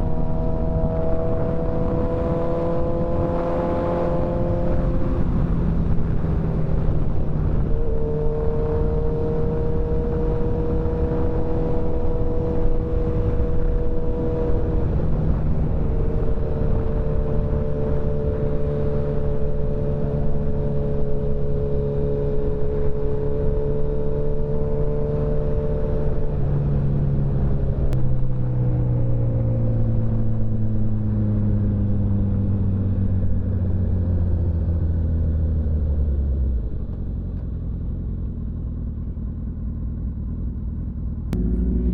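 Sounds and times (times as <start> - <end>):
rush of riding noise: 0.0 - 37.7, 41.4 - 41.9
motorcycle engine cruising: 0.0 - 41.9.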